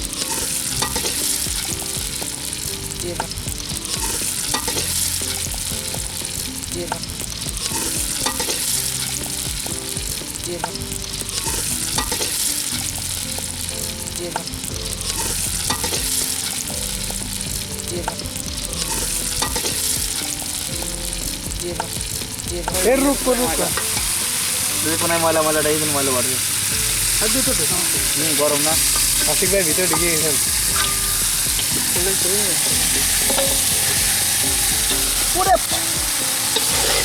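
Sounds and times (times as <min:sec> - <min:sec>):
food sizzling in a pot: 0:00.0 - 0:37.0
spoon scraping a metal pot: 0:28.8 - 0:37.0.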